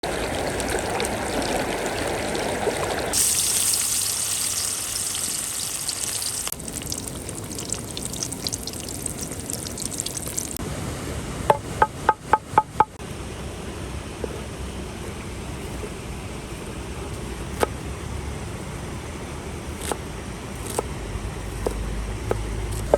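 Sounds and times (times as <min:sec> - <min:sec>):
crackling fry: 0:00.0 - 0:10.6
running water: 0:00.0 - 0:10.6
hissing sizzle of frying: 0:00.0 - 0:11.1.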